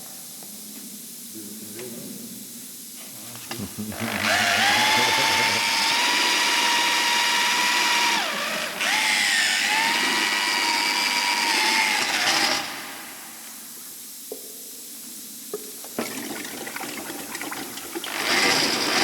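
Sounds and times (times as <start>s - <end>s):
power tool whining: 3.4s - 13.6s, 18.1s - 19.0s.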